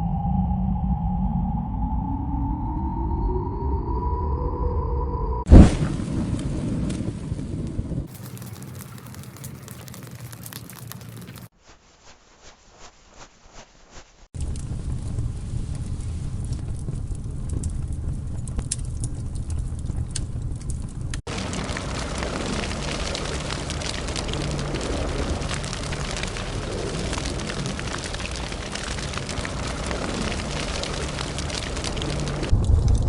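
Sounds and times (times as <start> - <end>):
fire crackling and rumbling: 5.5 - 11.5, 14.4 - 33.0.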